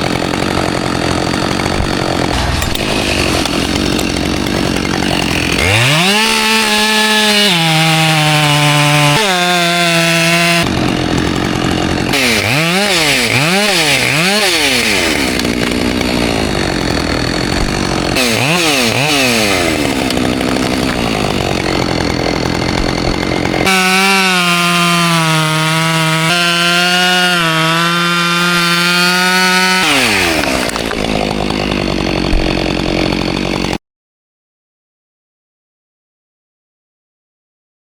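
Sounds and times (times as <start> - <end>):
chainsaw engine revving: 0.0 - 33.8.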